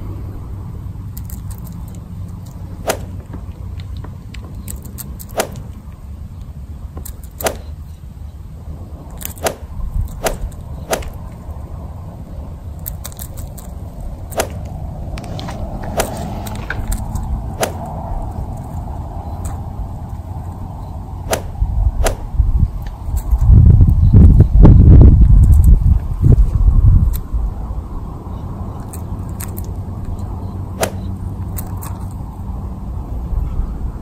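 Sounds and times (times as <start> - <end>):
steady low rumble: 0.0 - 34.0
sharp clicks: 1.1 - 6.0, 7.0 - 8.0, 9.1 - 11.4, 12.8 - 15.2, 28.8 - 32.2.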